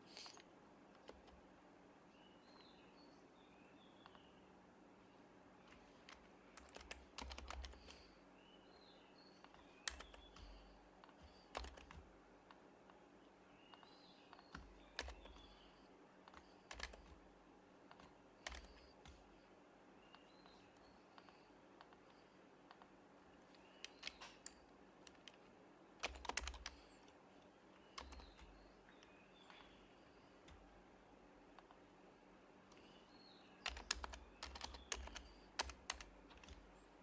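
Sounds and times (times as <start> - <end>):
soft keyboard keystrokes: 0.0 - 1.4, 5.6 - 8.1, 9.4 - 13.0, 13.7 - 17.3, 17.9 - 19.4, 23.5 - 30.8, 33.6 - 36.8
faint bird chirps: 2.1 - 12.0, 12.6 - 25.4, 26.0 - 37.0.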